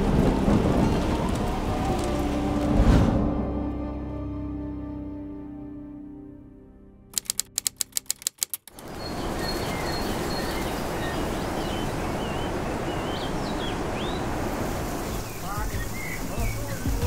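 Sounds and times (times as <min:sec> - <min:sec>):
rapid sharp clicks: 0:07.2 - 0:08.8
small birds chirping: 0:07.2 - 0:14.4, 0:15.0 - 0:17.0
rushing outdoor noise: 0:07.2 - 0:17.0.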